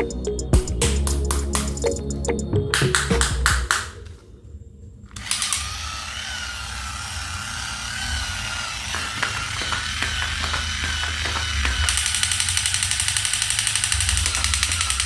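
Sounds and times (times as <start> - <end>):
toy motor and gears whirring: 5.2 - 15.0
quick ratcheting clicks: 11.9 - 15.0.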